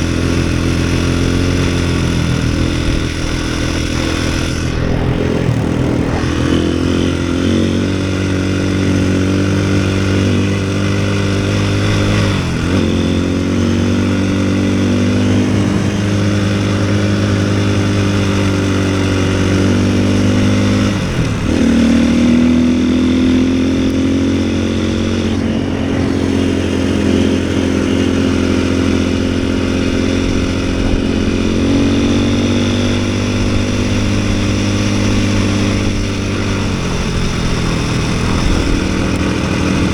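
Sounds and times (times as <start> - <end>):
snowbike engine under load: 0.0 - 39.9.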